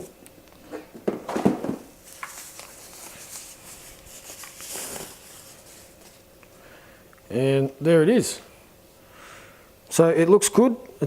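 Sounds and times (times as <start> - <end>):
packaging rustling and scraping: 1.9 - 6.3.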